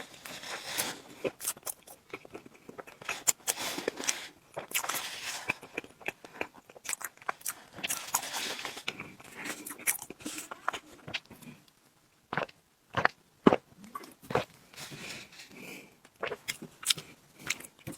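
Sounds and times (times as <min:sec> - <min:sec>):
close chewing with mouth clicks: 0:00.0 - 0:17.9.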